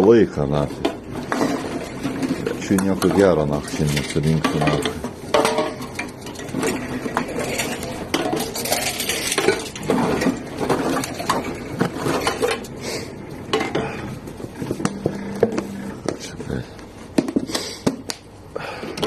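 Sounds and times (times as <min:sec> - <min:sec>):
bottles and cans clinking in bag: 0:00.8 - 0:12.8.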